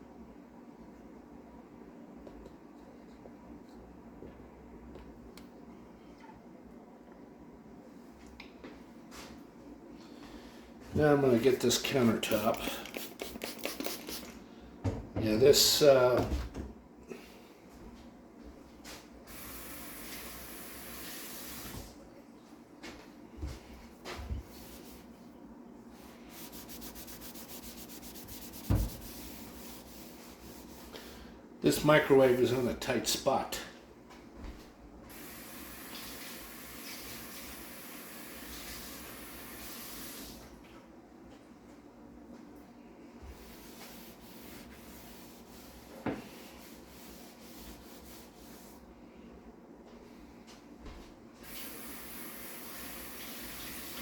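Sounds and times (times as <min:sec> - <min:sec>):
countertop being scrubbed: 0:12.3 - 0:14.4, 0:24.1 - 0:25.2, 0:26.0 - 0:31.0, 0:43.2 - 0:48.8
thump: 0:28.7 - 0:29.0.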